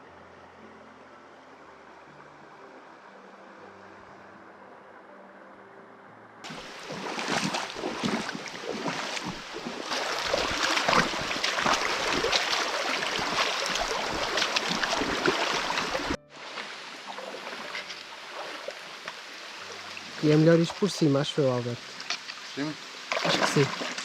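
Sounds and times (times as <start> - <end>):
river water splashing: 6.4 - 24.0.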